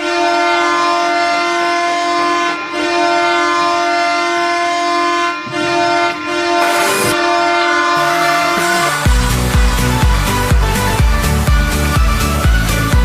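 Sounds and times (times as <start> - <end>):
goal horn blasts: 0.0 - 10.1.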